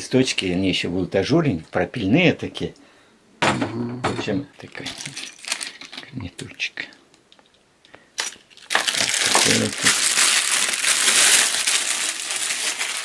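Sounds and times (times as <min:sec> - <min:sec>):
wrapping crinkling by hand: 0:04.6 - 0:06.3, 0:08.2 - 0:13.0.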